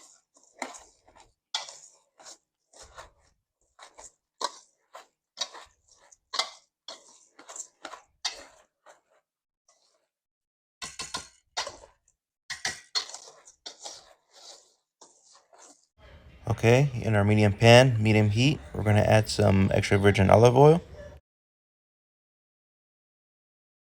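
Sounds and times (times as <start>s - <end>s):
rice crunching in a bowl: 0.0s - 9.1s, 10.8s - 15.9s.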